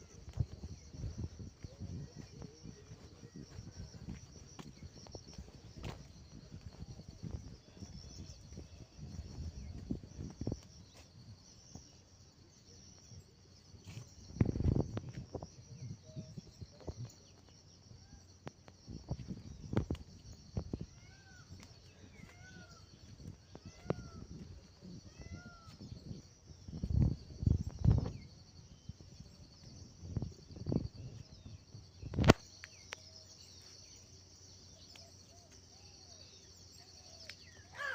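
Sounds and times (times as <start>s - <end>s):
insects chirring: 0.0s - 37.9s
low rumbles on microphone: 23.1s - 32.3s.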